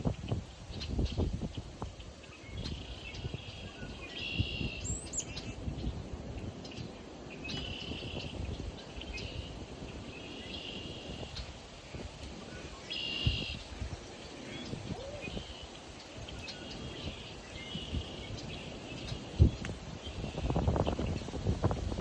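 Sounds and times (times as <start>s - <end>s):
wind rumble on microphone: 0.0s - 22.0s
songbird trilling: 2.3s - 6.0s, 6.7s - 11.5s, 12.5s - 21.3s.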